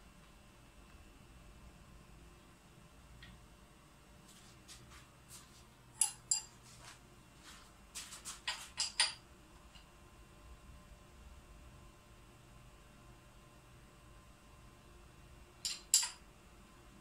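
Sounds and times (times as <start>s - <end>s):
metal tools clinking: 6.0s - 6.6s, 8.5s - 9.2s, 15.6s - 16.2s.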